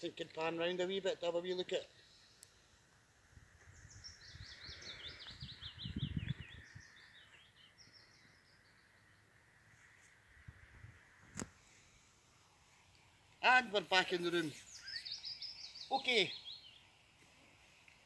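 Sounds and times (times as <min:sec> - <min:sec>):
songbird singing: 0:00.0 - 0:18.0
low rumble on microphone: 0:03.4 - 0:07.0.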